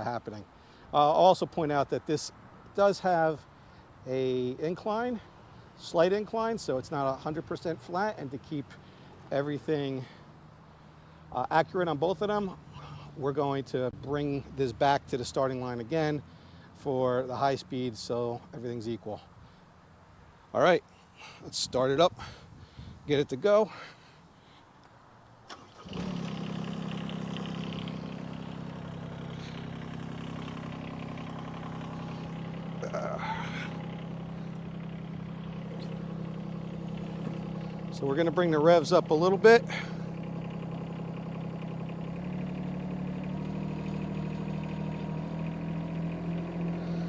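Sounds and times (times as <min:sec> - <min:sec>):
excavator engine starting and idling: 0:25.4 - 0:47.0.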